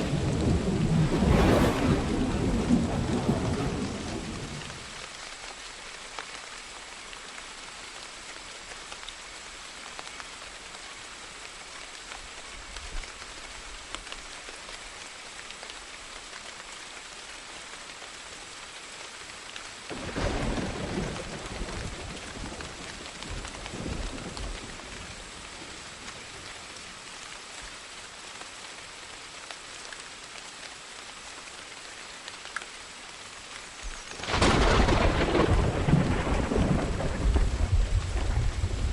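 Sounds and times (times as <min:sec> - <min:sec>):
thunder rumble: 0:00.0 - 0:05.0, 0:19.9 - 0:24.8, 0:34.1 - 0:38.9
steady rainfall: 0:00.0 - 0:38.9.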